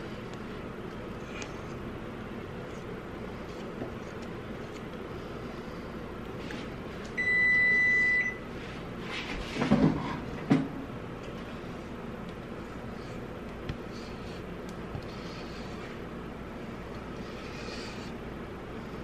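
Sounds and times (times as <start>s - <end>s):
appliance electronic beep: 7.2s - 8.5s.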